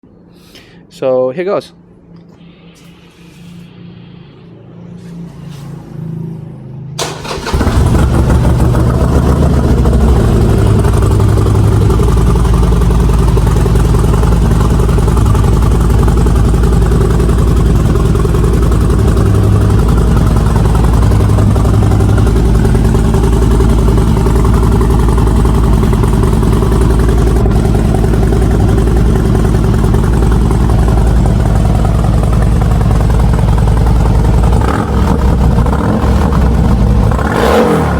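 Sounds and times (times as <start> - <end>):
motorcycle engine cranking: 7.0 - 11.4
motorcycle engine idling: 7.1 - 37.8.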